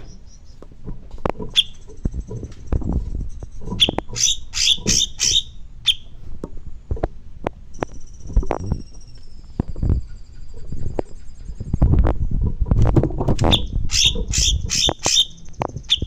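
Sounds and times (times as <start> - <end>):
songbird chirping: 0.0 - 0.8, 1.4 - 6.2, 7.7 - 12.0, 13.4 - 16.0
thin high bird trill: 1.5 - 6.2, 7.7 - 11.8, 13.4 - 16.0.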